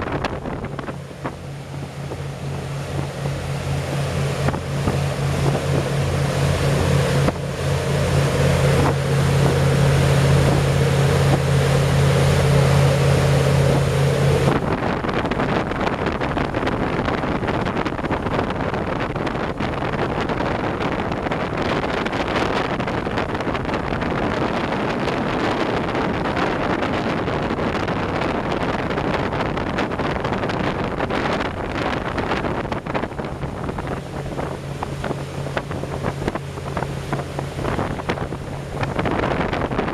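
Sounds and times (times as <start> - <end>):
rushing water: 0.0 - 15.8, 27.9 - 39.9
boat engine droning: 0.0 - 39.9
wind buffeting microphone: 0.0 - 39.9.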